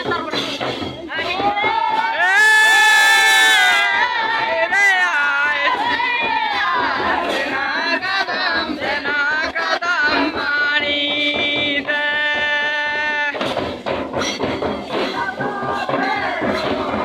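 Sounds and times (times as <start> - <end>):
group singing a dance song: 0.0 - 17.0.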